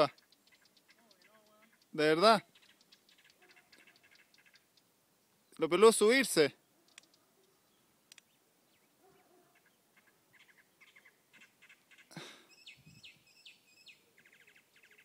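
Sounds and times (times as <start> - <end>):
faint small birds chirping: 0.0 - 15.0.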